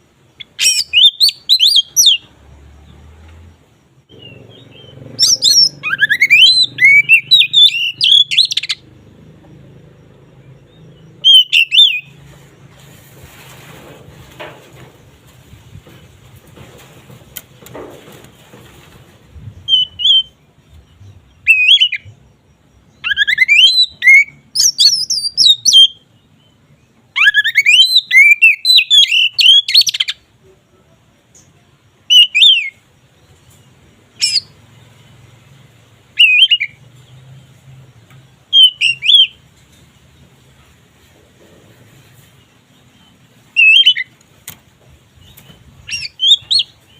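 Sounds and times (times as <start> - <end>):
songbird whistling and warbling: 0.3 - 2.3, 4.1 - 8.8, 10.5 - 12.2, 19.4 - 22.2, 22.9 - 26.0, 27.1 - 30.3, 32.1 - 32.8, 34.2 - 34.6, 36.2 - 36.8, 38.5 - 39.4, 43.0 - 44.2, 45.2 - 46.9.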